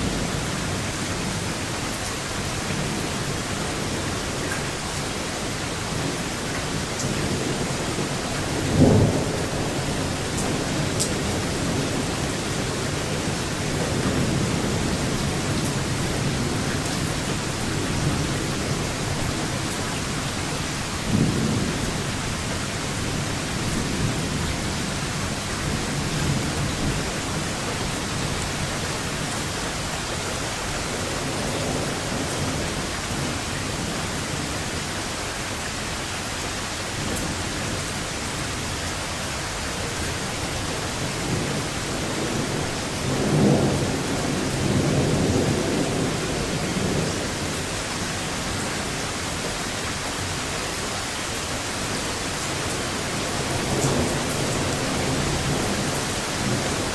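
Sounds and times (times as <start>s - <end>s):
steady rain: 0.0s - 56.9s
rolling thunder: 7.0s - 29.5s, 41.0s - 49.5s.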